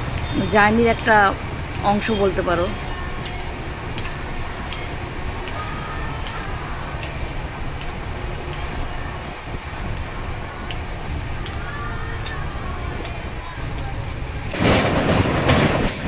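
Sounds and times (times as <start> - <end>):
people clapping in time: 0.0 - 14.6
train rumble from inside: 0.0 - 16.0
faint chanting: 2.2 - 14.6.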